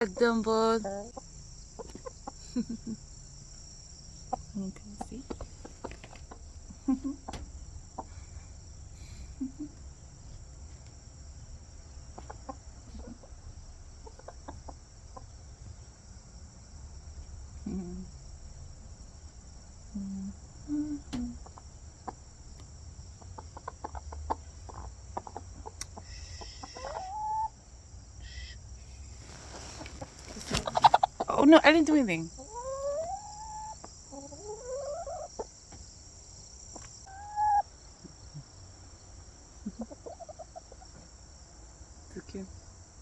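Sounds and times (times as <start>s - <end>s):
hens clucking: 0.0s - 10.5s, 11.9s - 15.3s, 21.1s - 27.7s, 29.2s - 38.2s, 39.2s - 41.1s.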